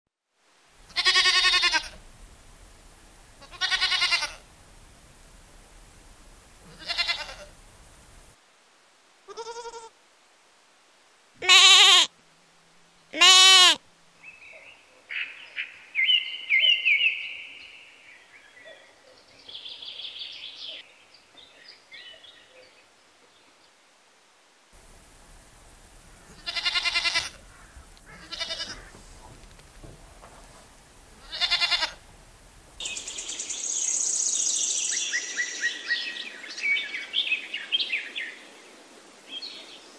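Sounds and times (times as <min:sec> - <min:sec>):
goats bleating: 0:00.9 - 0:02.0, 0:03.4 - 0:04.5, 0:06.6 - 0:07.6, 0:09.3 - 0:09.9, 0:11.4 - 0:12.1, 0:13.2 - 0:13.8, 0:26.1 - 0:30.3, 0:31.0 - 0:32.1
higher chirping calls: 0:32.8 - 0:38.0.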